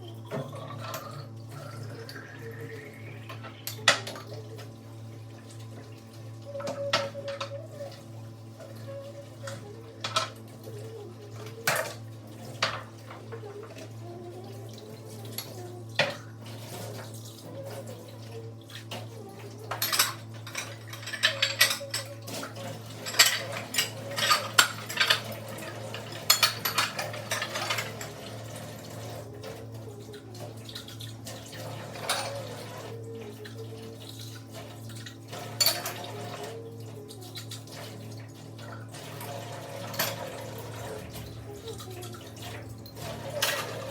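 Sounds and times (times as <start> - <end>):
dishes and cutlery clinking: 19.7 - 28.2, 31.9 - 32.6, 35.4 - 36.5.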